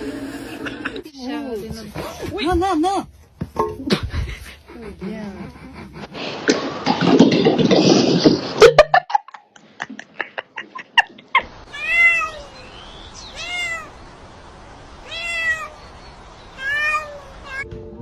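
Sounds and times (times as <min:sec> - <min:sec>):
cat meowing: 0:11.7 - 0:12.6, 0:13.3 - 0:14.0, 0:15.0 - 0:15.8, 0:16.5 - 0:17.7.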